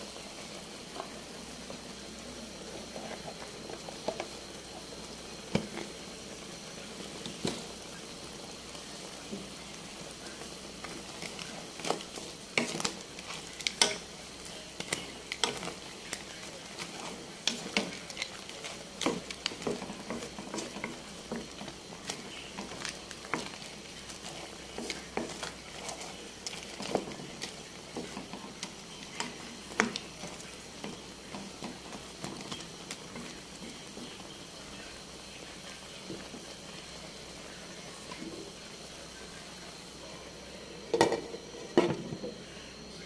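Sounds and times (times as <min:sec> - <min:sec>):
crayfish sizzling in a wok: 0:00.0 - 0:43.0.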